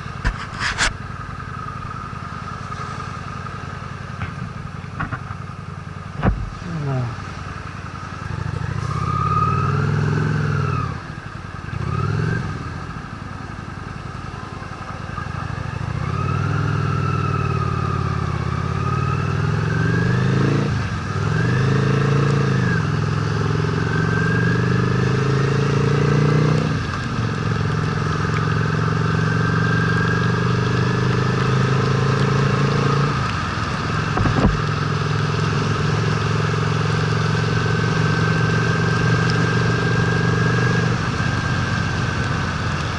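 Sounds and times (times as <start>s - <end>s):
motorcycle engine revving: 6.2s - 11.1s, 11.7s - 12.9s, 14.8s - 42.9s.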